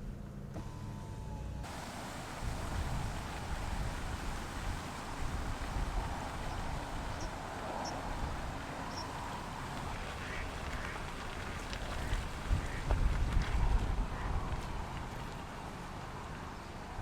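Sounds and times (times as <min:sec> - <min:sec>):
car engine humming: 0:00.0 - 0:17.0
wind and road noise: 0:00.0 - 0:17.0.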